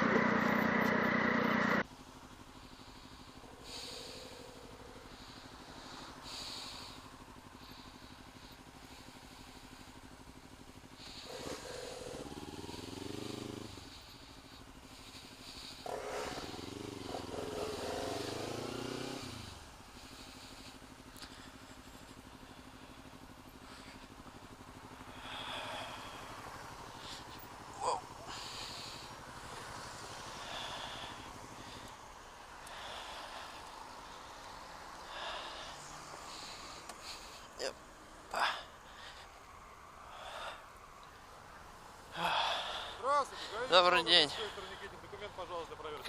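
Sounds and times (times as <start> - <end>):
motorcycle engines: 0.0 - 46.0.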